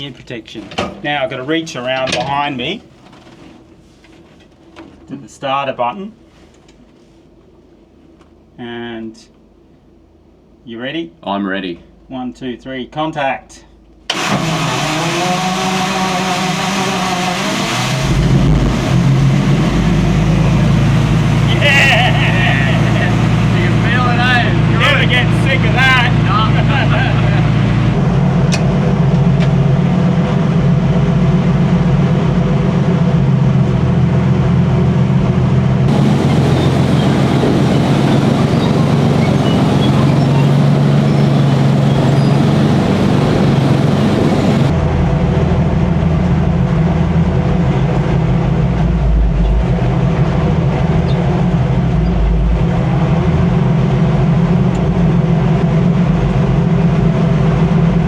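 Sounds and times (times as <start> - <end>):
tank engine running loudly: 14.1 - 58.0.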